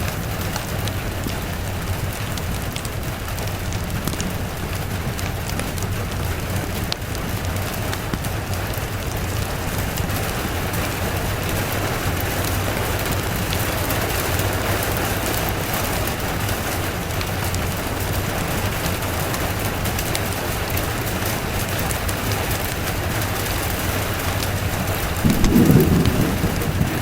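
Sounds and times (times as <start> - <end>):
rain hissing: 0.0 - 27.0
low rumble: 25.2 - 27.0.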